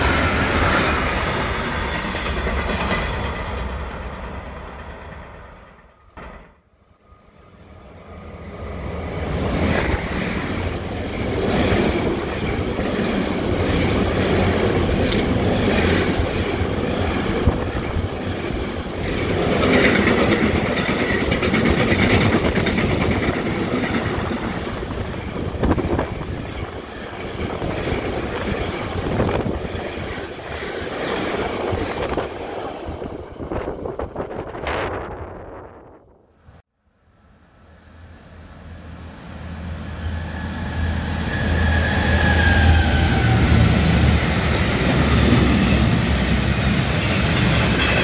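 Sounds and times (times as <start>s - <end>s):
wheels clacking over rail joints: 0.0s - 5.2s, 11.0s - 32.5s, 46.2s - 48.0s
train wheels rumbling on rails: 0.0s - 6.6s, 7.8s - 35.6s, 39.6s - 48.0s.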